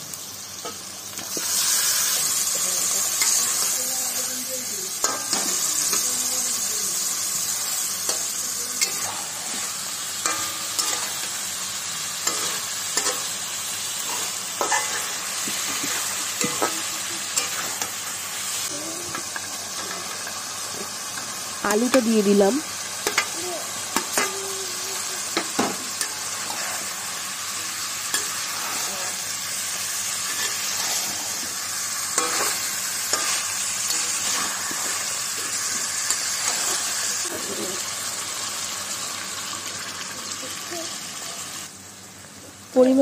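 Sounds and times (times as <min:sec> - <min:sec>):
chicken sizzling in hot oil: 0:00.0 - 0:43.0
metal spatula scraping pan: 0:08.1 - 0:11.4, 0:14.0 - 0:18.0, 0:28.1 - 0:29.2, 0:30.2 - 0:37.6.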